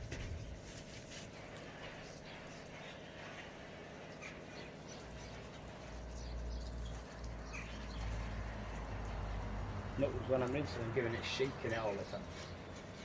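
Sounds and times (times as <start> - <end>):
bird chirps: 4.1 - 8.2.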